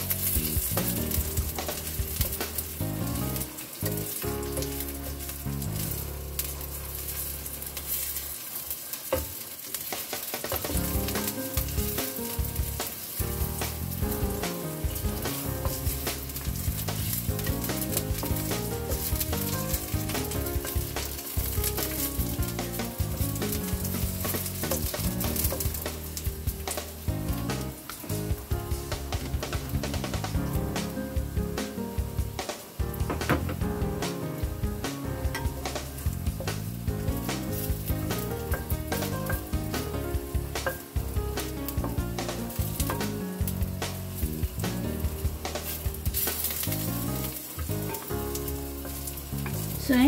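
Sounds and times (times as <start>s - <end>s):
background music: 0.0s - 8.4s, 10.3s - 50.0s
wooden spatula stirring: 0.0s - 27.1s, 35.3s - 44.7s, 45.3s - 50.0s
ginger sizzling in oil: 0.0s - 50.0s
wooden spoon stirring: 14.8s - 27.0s, 45.5s - 50.0s.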